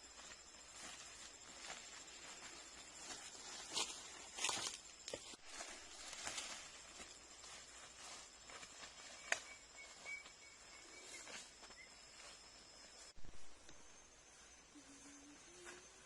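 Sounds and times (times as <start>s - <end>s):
faint high whine: 0.0s - 16.0s
footsteps in leaf litter: 0.7s - 9.3s.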